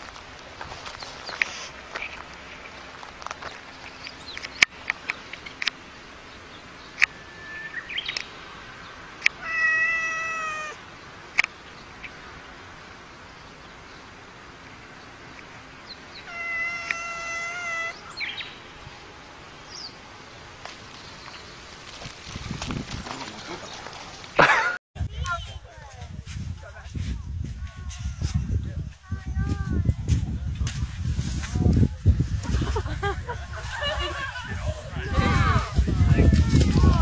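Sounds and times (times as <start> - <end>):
cat yowling: 9.4 - 10.8, 16.3 - 18.0.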